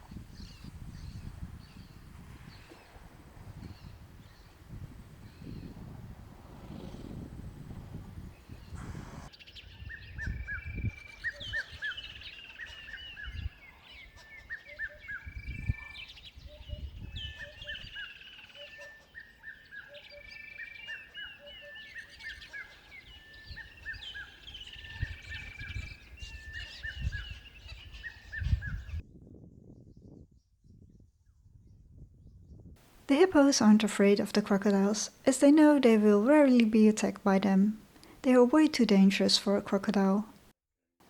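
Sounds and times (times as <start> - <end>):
birds chirping: 6.5 - 29.0.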